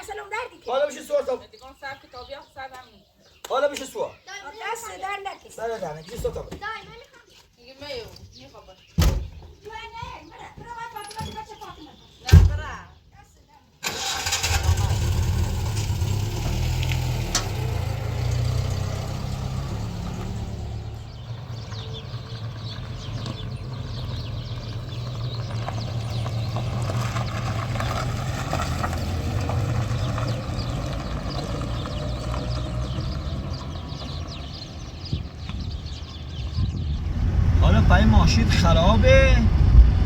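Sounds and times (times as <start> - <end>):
car engine running: 14.0 - 40.0.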